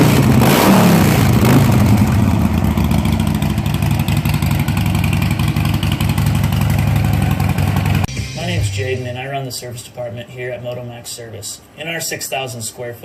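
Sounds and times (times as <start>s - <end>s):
motorcycle engine idling: 1.2s - 8.1s.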